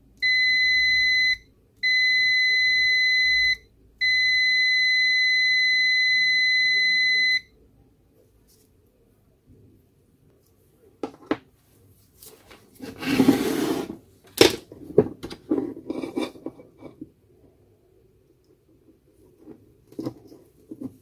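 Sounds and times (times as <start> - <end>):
scraping rub: 12.3 - 14.0.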